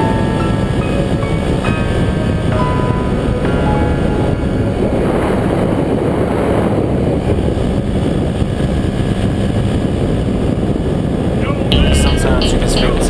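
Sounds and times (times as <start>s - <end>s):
paramotor engine rumbling: 0.0s - 13.0s
wind on microphone: 0.0s - 13.0s.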